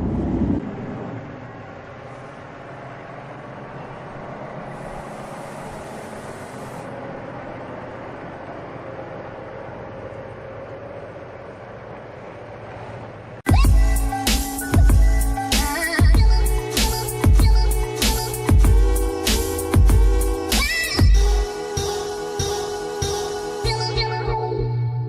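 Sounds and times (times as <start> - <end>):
truck engine and road noise: 0.0 - 24.7
air brake hiss: 4.6 - 7.0
music: 13.5 - 25.0.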